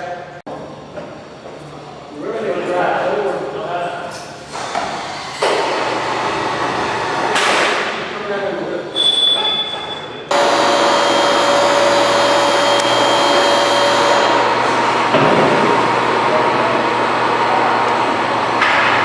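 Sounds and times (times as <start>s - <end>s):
electric motor whining: 10.3s - 15.1s.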